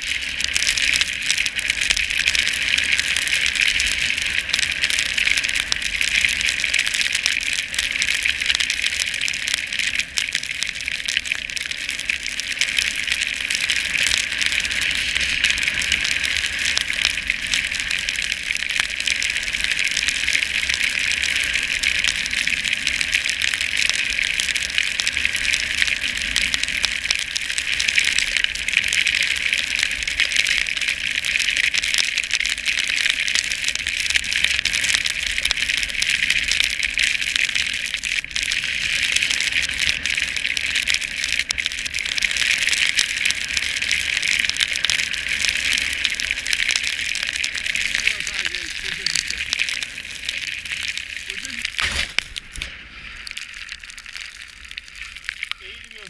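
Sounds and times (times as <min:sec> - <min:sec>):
sliding over snow hiss: 0:12.8 - 0:18.5, 0:41.8 - 0:56.0.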